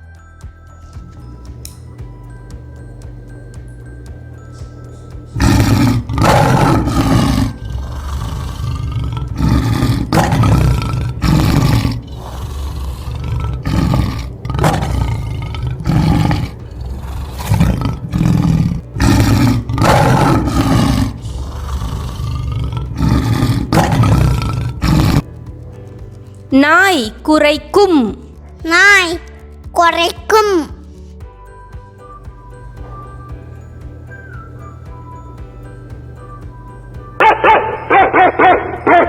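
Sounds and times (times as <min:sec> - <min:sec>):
light background music: 0:00.0 - 0:39.0
lion roaring: 0:00.9 - 0:25.3.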